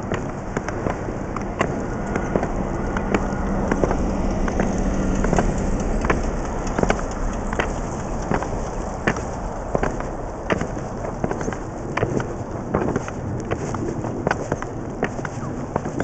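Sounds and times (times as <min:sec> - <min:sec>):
low steady hum: 0:00.0 - 0:16.0
ski poles and skis clicking: 0:00.0 - 0:16.0
steady rushing noise: 0:00.0 - 0:16.0.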